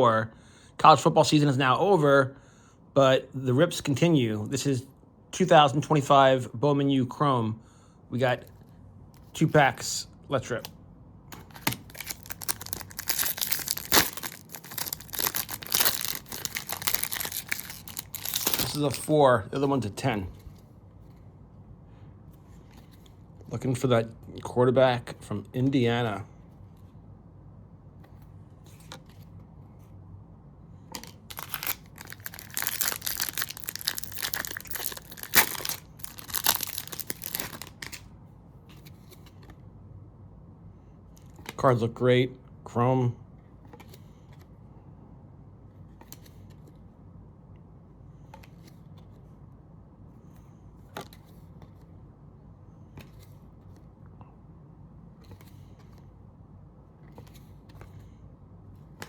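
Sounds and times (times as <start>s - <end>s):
card pack wrapper tearing and crinkling: 11.4s - 19.1s, 31.0s - 38.1s.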